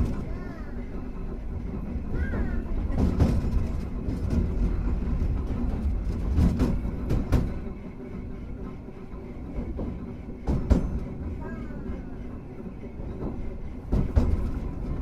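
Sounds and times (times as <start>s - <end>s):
tram motors and wheels rumbling: 0.0s - 15.0s
wheels knocking over rail joints: 1.9s - 7.7s, 13.1s - 15.0s.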